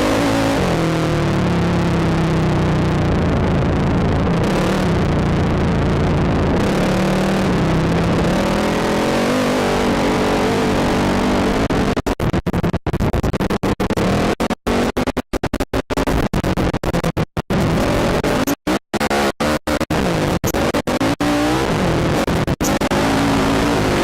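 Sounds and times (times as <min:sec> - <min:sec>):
atv engine revving: 0:00.0 - 0:02.4, 0:04.4 - 0:11.9, 0:17.6 - 0:24.0.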